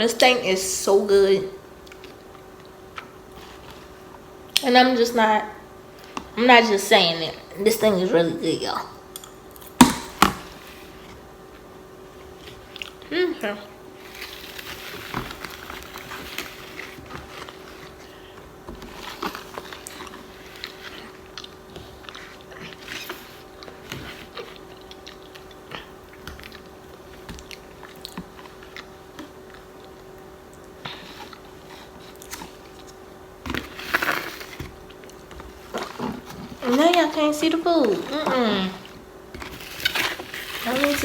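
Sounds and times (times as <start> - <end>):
faint steady hum: 0.0 - 41.0
close chewing and biting: 18.9 - 33.0.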